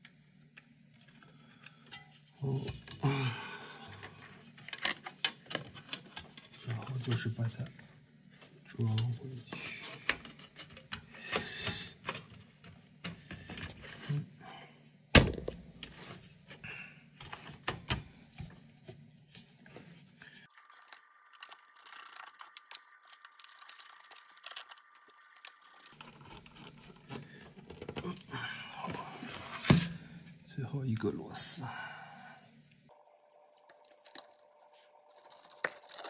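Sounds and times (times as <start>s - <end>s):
parts scraping and clicking into place: 9.8s - 14.1s.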